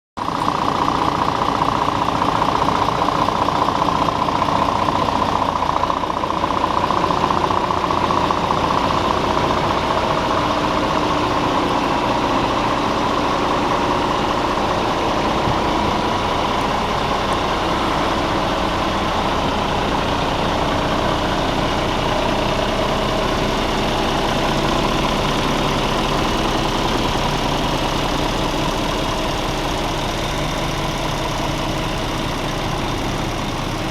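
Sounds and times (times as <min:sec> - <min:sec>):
diesel truck engine running: 0:00.2 - 0:33.9.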